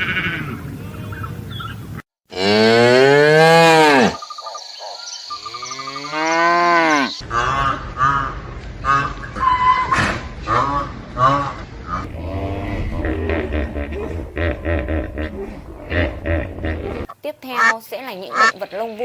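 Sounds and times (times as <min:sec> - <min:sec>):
cow mooing: 0:02.3 - 0:04.2, 0:05.5 - 0:07.7, 0:12.0 - 0:17.1.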